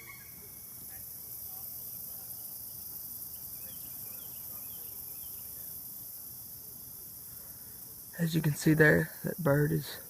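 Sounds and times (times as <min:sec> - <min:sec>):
crickets and insects chorus: 0:00.0 - 0:10.0.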